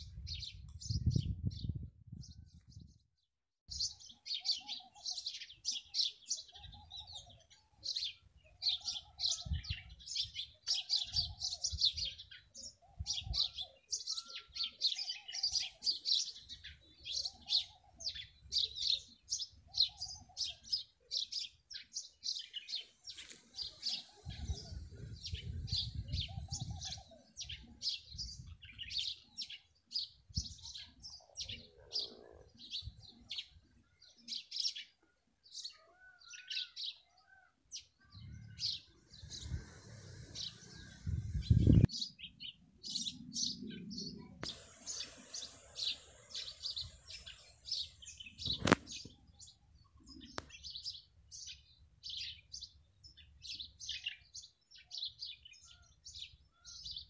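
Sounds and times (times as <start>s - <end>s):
birds chirping and twittering: 0.0s - 57.0s
lower arched bird call: 44.2s - 49.1s.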